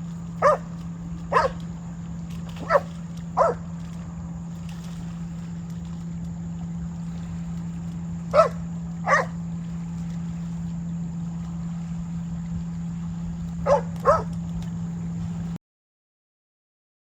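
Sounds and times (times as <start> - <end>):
steady low hum: 0.0 - 15.6
dog barking: 0.4 - 0.7, 1.3 - 1.6, 2.6 - 3.7, 8.3 - 9.4, 13.6 - 14.4.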